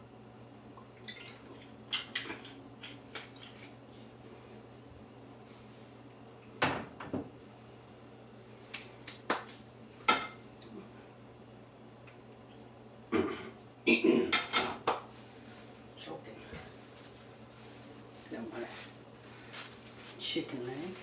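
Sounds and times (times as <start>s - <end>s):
pans and dishes clattering: 14.3s - 14.8s.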